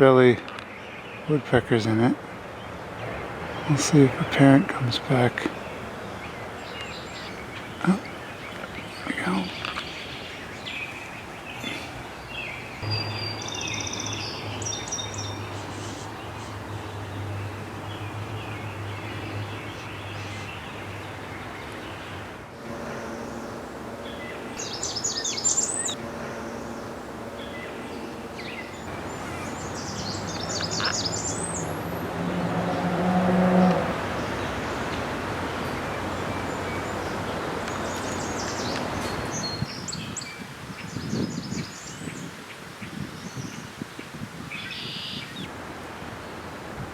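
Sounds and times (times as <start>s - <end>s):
songbirds singing and calling: 0.0s - 46.7s
small birds chirping: 0.6s - 32.8s, 33.6s - 45.5s
steady rushing noise: 14.4s - 33.0s
low hum: 14.4s - 38.9s.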